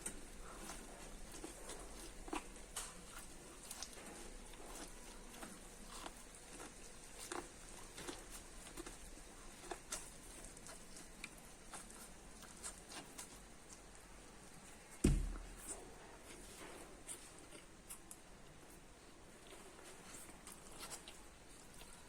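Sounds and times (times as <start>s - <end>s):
chewing corn crunches: 0.0s - 22.0s
heavy thump: 15.0s - 15.6s.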